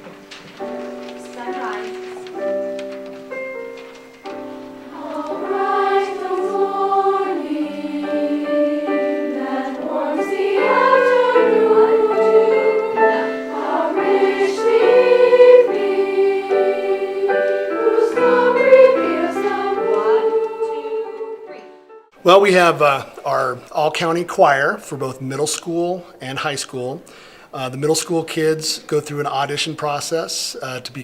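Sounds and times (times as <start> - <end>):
choir singing in harmony: 4.4 - 21.8.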